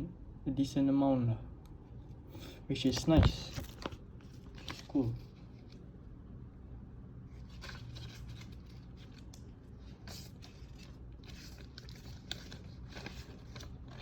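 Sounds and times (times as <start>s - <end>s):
cardboard and paper rustling: 2.8s - 5.8s, 7.3s - 14.0s.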